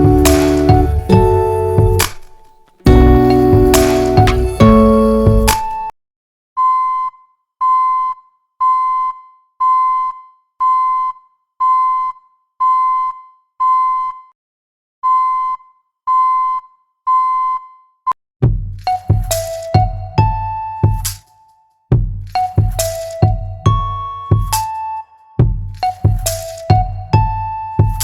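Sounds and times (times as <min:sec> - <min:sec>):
music: 0:00.0 - 0:05.9, 0:18.4 - 0:28.0.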